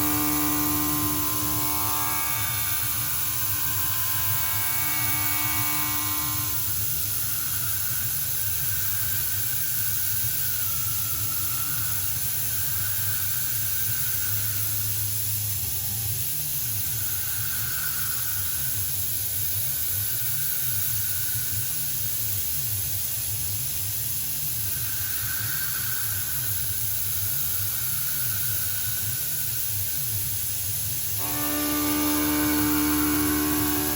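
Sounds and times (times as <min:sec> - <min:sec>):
faint wavering whine: 0:00.0 - 0:22.6, 0:31.0 - 0:33.9
cnc milling machine hissing: 0:00.0 - 0:33.9.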